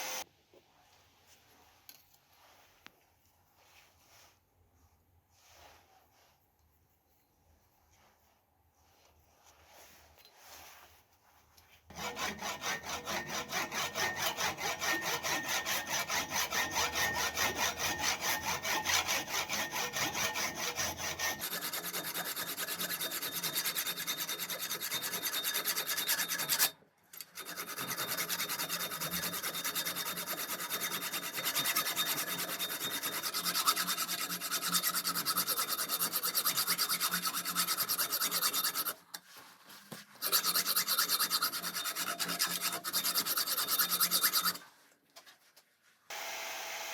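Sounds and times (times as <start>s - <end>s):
hand scraping rusted metal: 11.9s - 44.7s.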